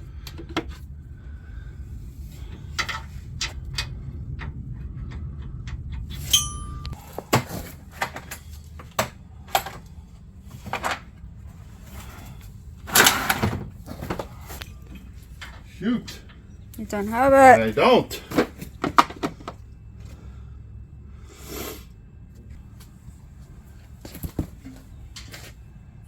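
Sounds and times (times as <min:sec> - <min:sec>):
low steady hum: 0:00.0 - 0:26.0
metal hand tools clinking: 0:06.2 - 0:07.2
bright metallic ping: 0:06.3 - 0:07.1.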